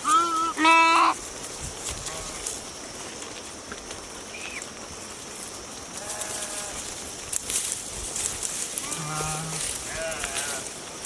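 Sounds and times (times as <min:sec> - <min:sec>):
sheep bleating: 0:00.0 - 0:01.2, 0:06.0 - 0:06.9, 0:08.8 - 0:10.8
steady hiss: 0:00.0 - 0:11.0.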